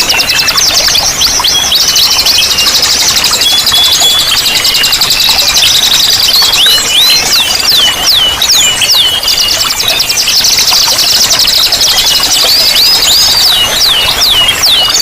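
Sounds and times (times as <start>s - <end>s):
bird trilling: 0.0s - 10.5s
running water: 0.0s - 15.0s
bird downward-sweeping whistles: 1.4s - 10.4s.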